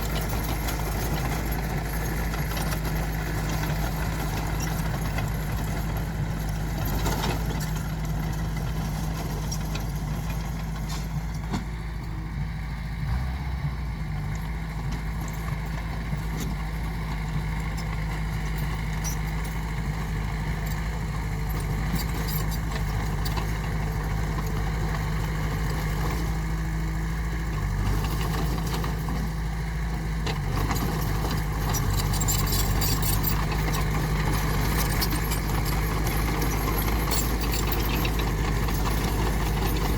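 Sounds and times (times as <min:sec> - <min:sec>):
diesel engine running: 0:00.0 - 0:39.9
light metallic clinks and rattles: 0:17.7 - 0:19.7, 0:21.5 - 0:23.7, 0:30.4 - 0:39.9.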